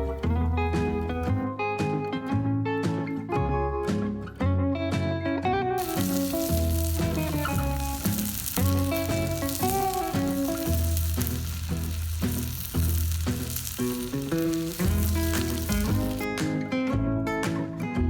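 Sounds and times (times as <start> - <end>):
background music: 0.0 - 18.0
steak sizzling in a frying pan: 5.8 - 16.3.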